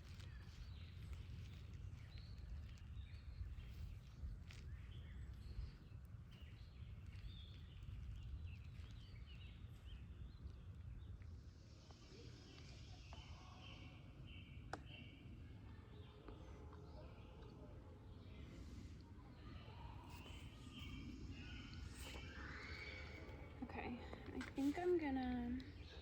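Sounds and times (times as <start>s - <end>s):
small birds chirping: 0.0s - 26.0s
steady low rumble: 17.5s - 26.0s.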